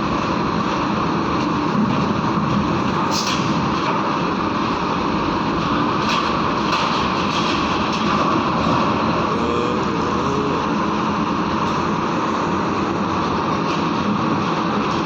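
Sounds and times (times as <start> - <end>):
diesel truck engines droning: 0.0 - 15.0.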